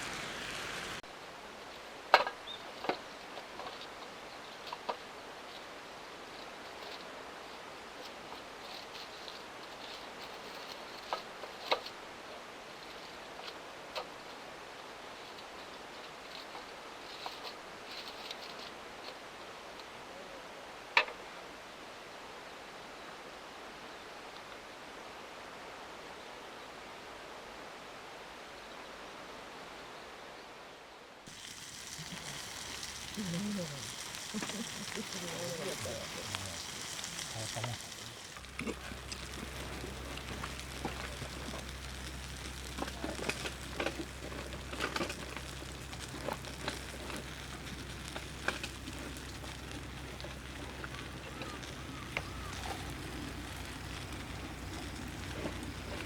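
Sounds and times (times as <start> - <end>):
campfire crackling and popping: 0.0 - 1.1, 31.3 - 56.0
steady outdoor hiss: 0.0 - 56.0
steady low hum: 31.3 - 56.0.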